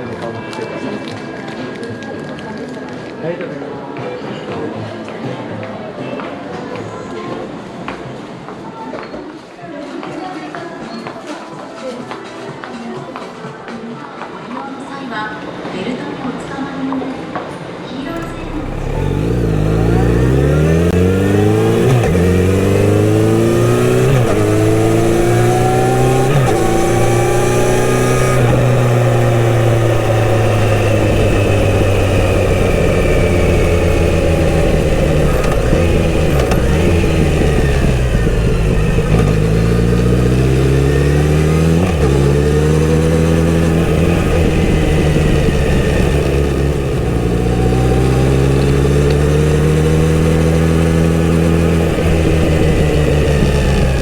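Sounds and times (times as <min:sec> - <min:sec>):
motorcycle engine accelerating: 0:18.1 - 0:54.0.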